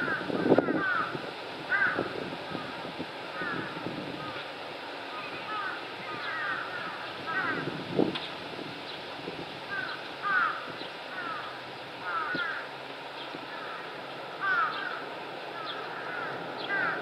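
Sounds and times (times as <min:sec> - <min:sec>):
bird calling harshly: 0:00.0 - 0:02.8, 0:05.1 - 0:07.7, 0:09.7 - 0:15.0, 0:15.6 - 0:17.0.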